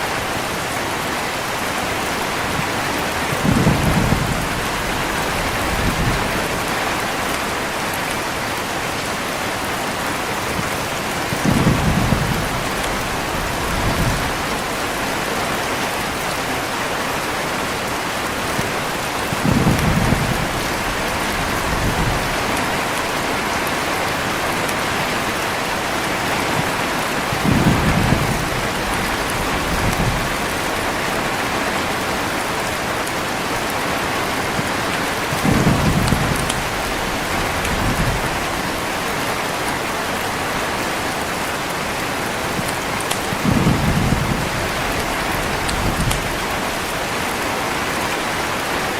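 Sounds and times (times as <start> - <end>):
heavy rain falling: 0.0 - 48.9
thunder rolling: 3.3 - 6.8, 10.5 - 14.5, 19.3 - 22.8, 26.2 - 31.0, 35.3 - 38.7, 42.6 - 46.7.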